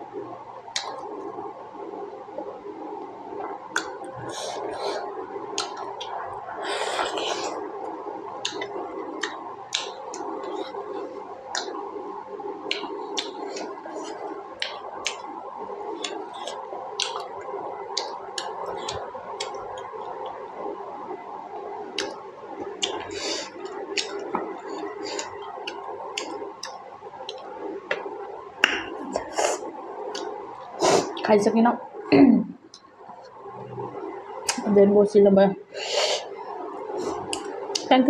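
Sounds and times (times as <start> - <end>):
lip smacks and mouth clicks: 0.7 - 1.3, 3.0 - 6.2, 6.8 - 11.8, 12.6 - 20.4, 21.9 - 31.3, 34.0 - 34.7, 37.1 - 37.9
wet chewing: 15.9 - 20.3, 21.9 - 30.4.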